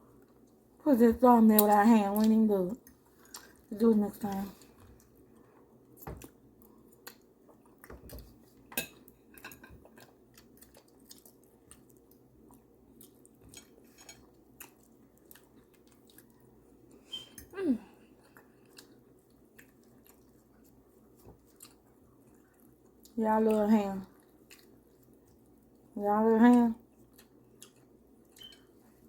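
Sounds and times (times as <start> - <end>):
chewing: 1.6 - 17.0, 18.1 - 25.9, 26.5 - 29.0
cutlery clicking on plates: 8.7 - 9.8.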